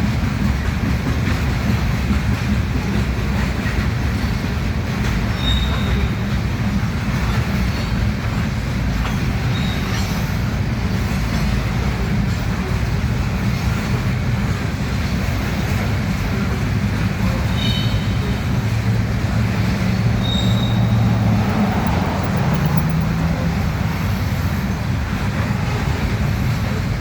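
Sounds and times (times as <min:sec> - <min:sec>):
train wheels rumbling on rail: 0:00.0 - 0:27.0
high wheel squeals: 0:05.2 - 0:06.5, 0:09.2 - 0:10.4, 0:17.3 - 0:25.0.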